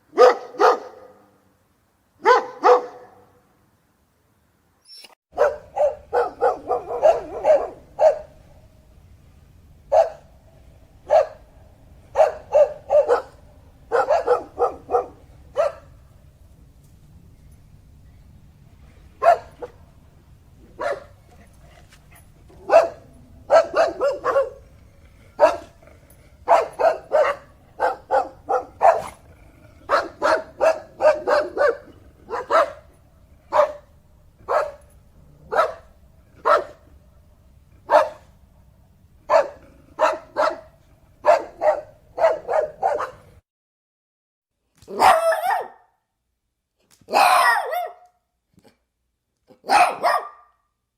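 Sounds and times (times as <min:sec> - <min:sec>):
dog barking: 0:00.1 - 0:01.4, 0:02.2 - 0:03.4, 0:05.4 - 0:08.4, 0:09.9 - 0:10.3, 0:11.0 - 0:11.5, 0:12.1 - 0:15.9, 0:19.2 - 0:19.8, 0:20.8 - 0:21.2, 0:22.6 - 0:24.6, 0:25.4 - 0:25.8, 0:26.4 - 0:29.2, 0:29.9 - 0:32.9, 0:33.5 - 0:34.9, 0:35.5 - 0:36.8, 0:37.8 - 0:38.3, 0:39.3 - 0:43.3, 0:44.9 - 0:46.0, 0:47.1 - 0:48.2, 0:49.6 - 0:50.6
faint low hum: 0:05.4 - 0:43.2.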